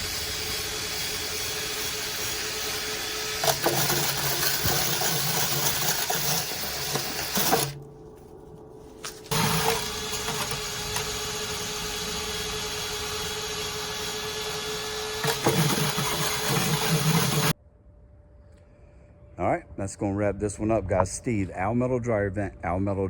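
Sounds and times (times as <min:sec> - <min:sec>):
motor humming: 0:00.0 - 0:17.6.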